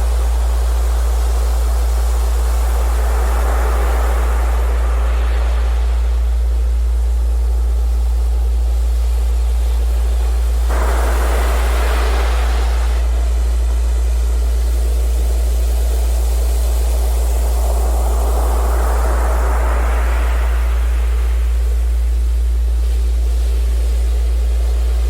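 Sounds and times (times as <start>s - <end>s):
steady low-pitched tone: 0.0s - 25.0s
ocean surf hissing: 2.2s - 6.7s, 10.6s - 14.9s, 16.7s - 22.0s.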